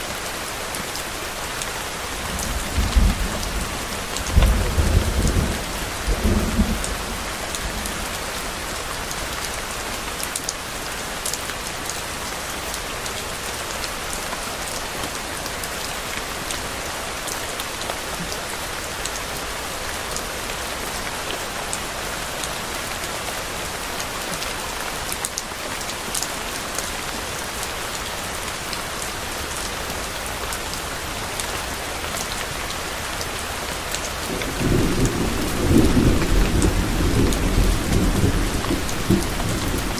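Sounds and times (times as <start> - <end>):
heavy rain falling: 0.0 - 39.9
thunder rumble: 2.3 - 8.0, 34.3 - 39.9.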